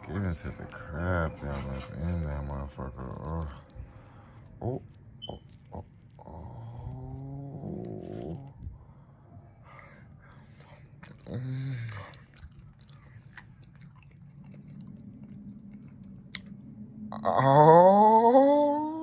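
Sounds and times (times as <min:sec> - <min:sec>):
person chewing with wet clicks: 0:00.0 - 0:08.6, 0:10.5 - 0:17.3
person humming mmm: 0:04.6 - 0:08.5, 0:17.1 - 0:19.0.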